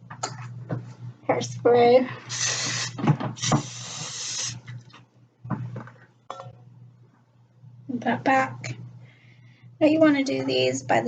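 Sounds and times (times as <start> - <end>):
hairspray can spraying: 2.3 - 4.6.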